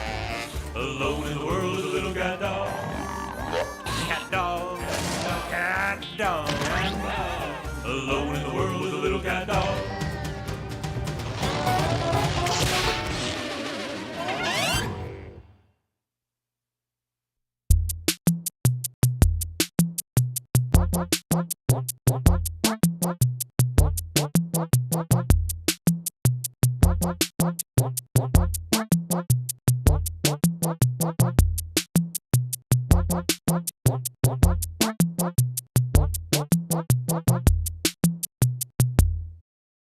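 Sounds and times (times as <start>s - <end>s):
electronic music with drum machine: 20.8s - 25.6s, 26.8s - 31.6s, 32.4s - 38.6s.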